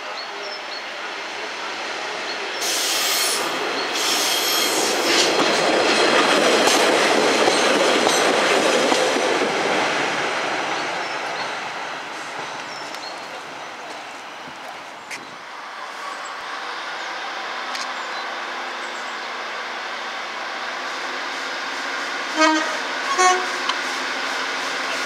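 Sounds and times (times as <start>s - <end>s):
train wheels rumbling on rails: 1.9s - 16.3s, 17.0s - 25.0s
train wheels squealing: 2.6s - 5.2s.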